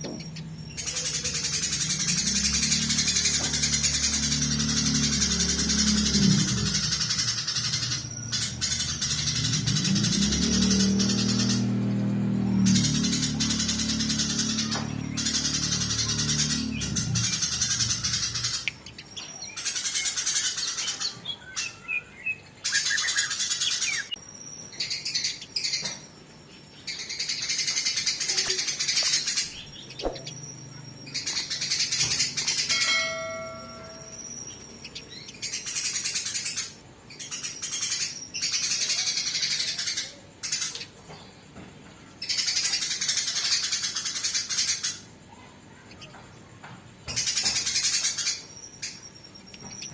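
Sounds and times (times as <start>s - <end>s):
sparrows chattering harshly: 0.0s - 49.9s.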